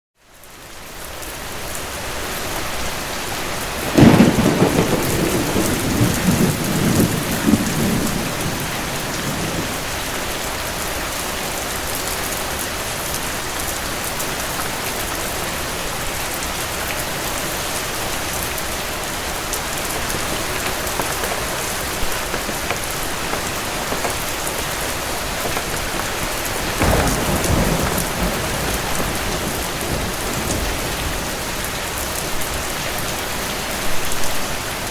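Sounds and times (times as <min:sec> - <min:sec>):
heavy rain: 0:00.4 - 0:34.9
thunder rolling: 0:03.8 - 0:09.9, 0:18.8 - 0:33.0.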